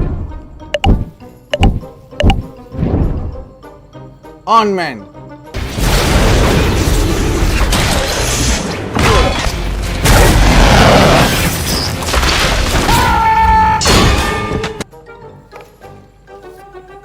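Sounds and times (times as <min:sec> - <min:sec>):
loud booming and crashing: 0:05.6 - 0:13.0.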